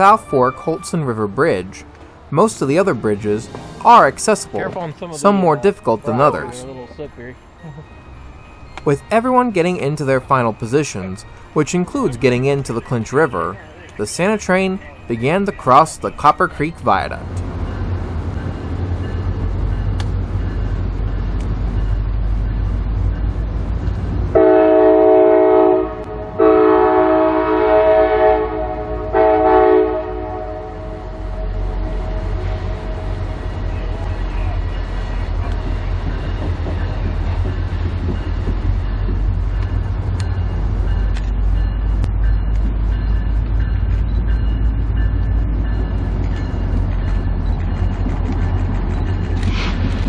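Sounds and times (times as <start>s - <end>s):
train deep rumble: 0.0s - 50.0s
locomotive air horn blasts: 24.4s - 33.3s.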